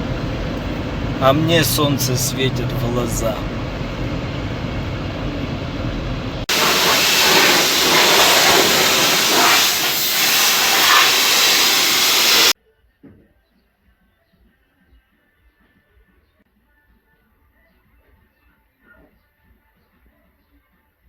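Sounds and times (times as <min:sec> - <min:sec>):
diesel engine and road noise: 0:00.0 - 0:12.6
loud rushing hiss: 0:00.0 - 0:12.6.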